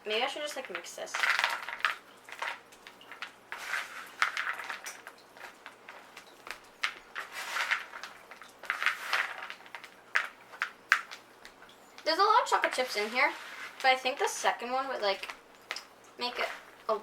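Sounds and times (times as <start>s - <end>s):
utensil scraping through dough: 3.5s - 6.1s, 6.8s - 10.6s, 12.5s - 14.6s.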